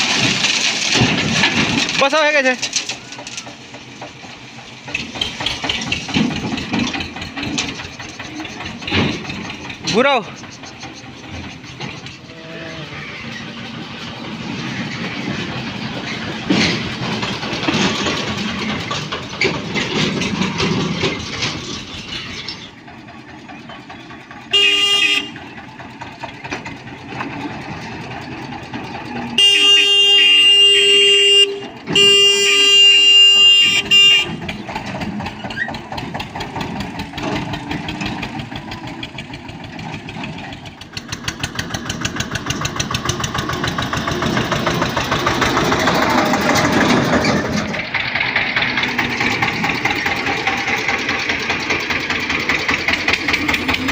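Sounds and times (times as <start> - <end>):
tractor diesel engine running: 0.0 - 53.9
vehicle horn: 24.5 - 25.4, 29.4 - 34.5.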